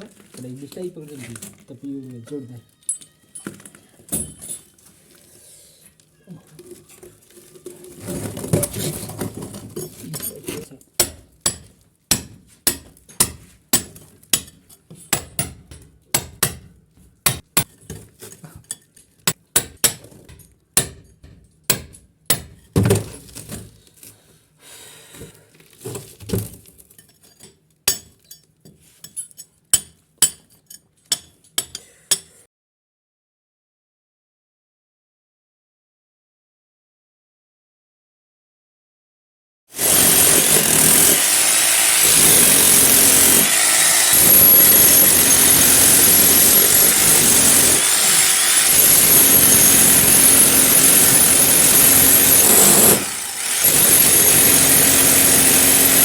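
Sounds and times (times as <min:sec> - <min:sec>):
hammer chipping masonry: 0:08.3 - 0:23.6, 0:26.4 - 0:28.4, 0:39.8 - 0:56.0.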